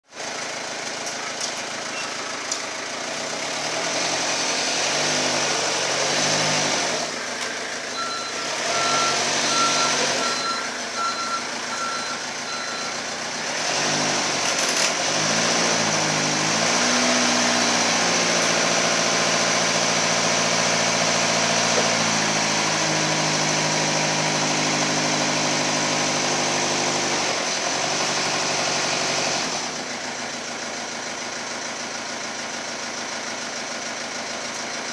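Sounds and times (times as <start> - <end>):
forklift diesel engine running: 0.1 - 34.9
reversing beeper beeps: 7.9 - 13.0.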